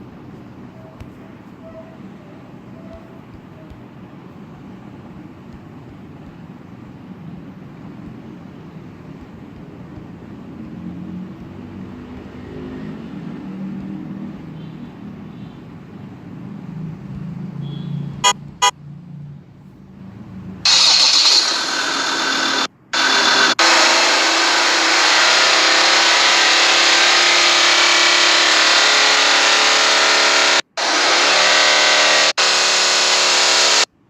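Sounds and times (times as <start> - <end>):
quick beeps: 17.6 - 18.7
car engine idling: 20.7 - 33.8.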